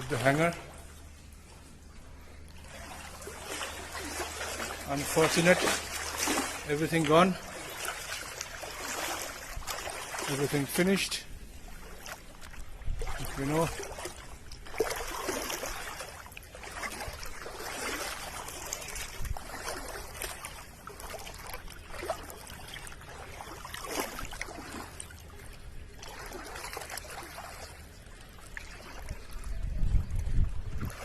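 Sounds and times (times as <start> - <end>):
water trickling and splashing: 0.0 - 31.0.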